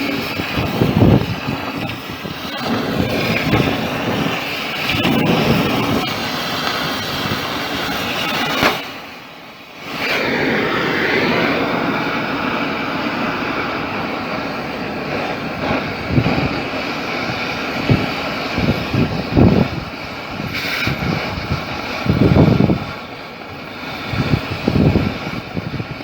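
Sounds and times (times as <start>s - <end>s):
machinery roar: 0.0s - 26.0s.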